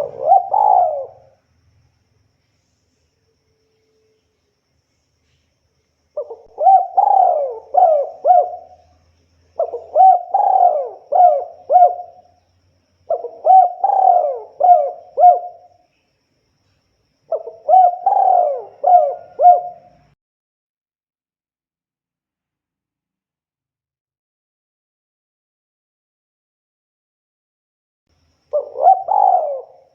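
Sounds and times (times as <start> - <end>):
dove cooing: 0.0 - 1.4, 6.2 - 9.0, 9.6 - 12.3, 13.1 - 15.7, 17.3 - 20.2, 28.5 - 29.9.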